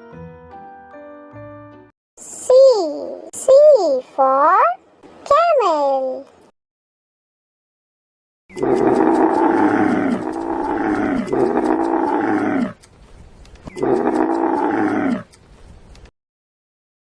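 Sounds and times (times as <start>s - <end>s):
camel calling: 8.5s - 12.8s, 13.7s - 15.3s.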